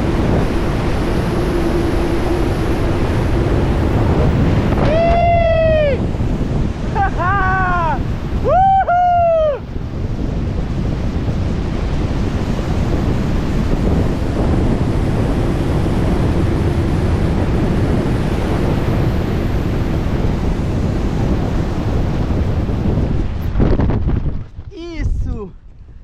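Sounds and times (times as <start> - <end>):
wind roaring over microphone: 0.0 - 26.0
person whooping shout: 4.8 - 6.0, 6.9 - 9.6.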